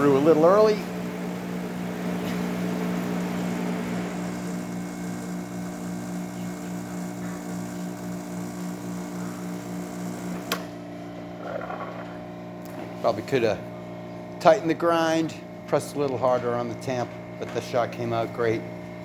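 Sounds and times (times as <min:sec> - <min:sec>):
espresso machine pump buzzing: 0:00.0 - 0:19.0
machine switch click: 0:10.4 - 0:10.7.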